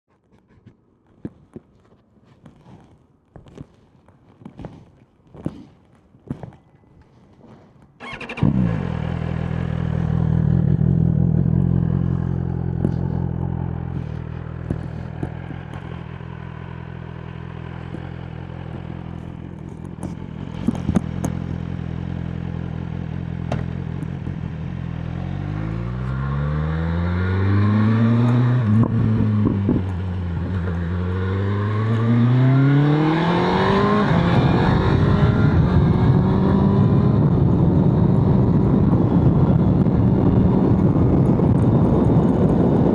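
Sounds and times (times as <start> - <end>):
motorcycle accelerating through gears: 8.0 - 42.9
motorcycle engine revving and idling: 8.0 - 42.9.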